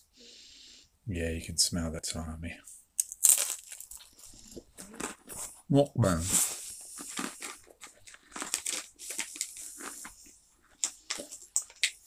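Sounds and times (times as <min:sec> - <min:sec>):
rice cracker crunching: 0:03.0 - 0:05.4, 0:06.2 - 0:12.0.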